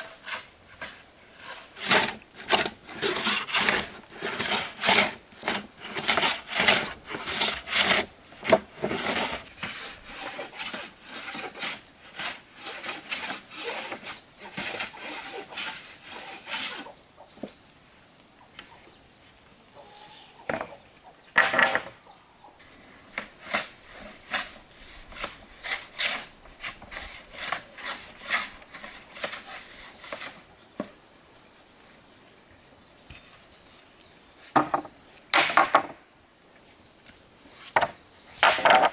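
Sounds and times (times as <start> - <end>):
insects droning: 0.0 - 38.9
woodworking knocks on timber: 21.4 - 22.0, 34.5 - 36.0, 37.8 - 38.9.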